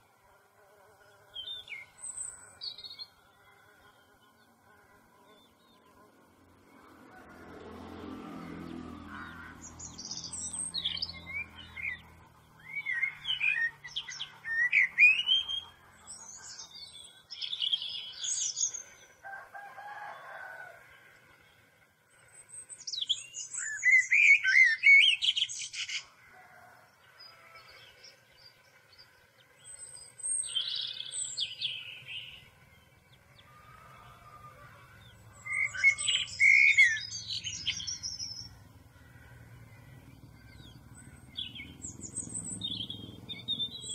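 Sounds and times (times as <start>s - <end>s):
birds chirping: 8.3s - 19.2s, 19.9s - 43.9s.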